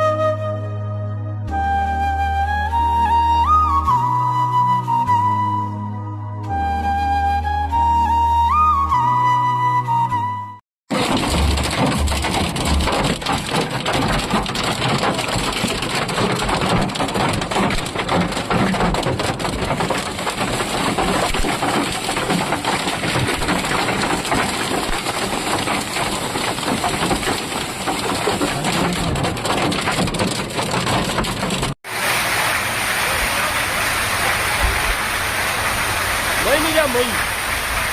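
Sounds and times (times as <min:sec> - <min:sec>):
heavy rain and hail: 0:10.9 - 0:37.9.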